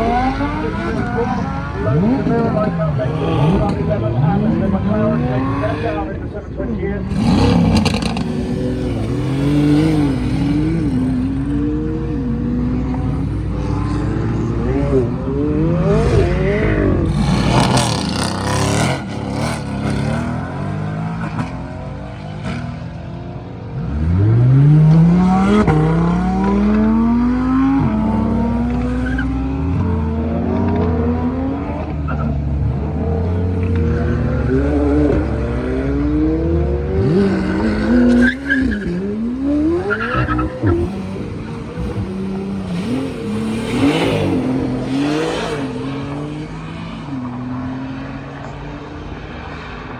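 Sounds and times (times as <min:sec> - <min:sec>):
car engines revving and accelerating: 0:00.0 - 0:49.9
tyre squeal: 0:28.8 - 0:29.6, 0:37.5 - 0:39.2.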